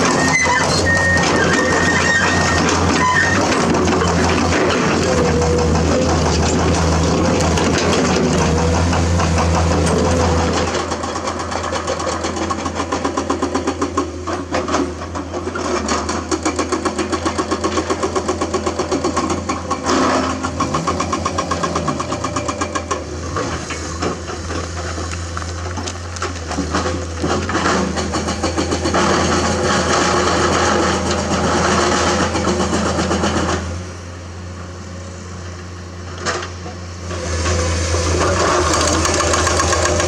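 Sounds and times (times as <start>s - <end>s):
excavator diesel engine chugging: 0.0s - 40.0s.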